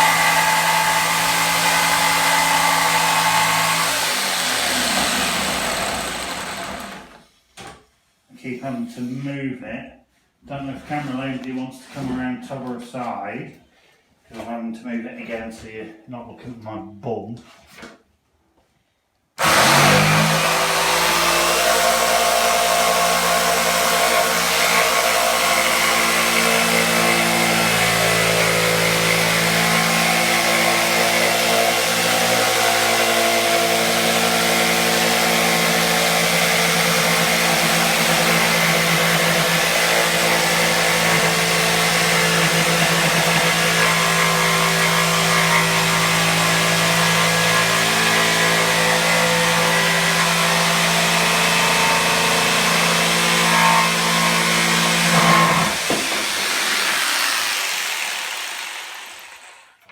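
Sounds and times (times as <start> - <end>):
power tool motor whining: 0.0 - 7.2, 19.4 - 59.5.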